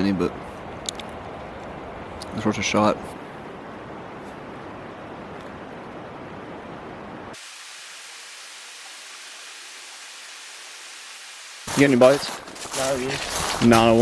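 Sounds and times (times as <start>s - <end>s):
high hiss: 7.3s - 12.3s.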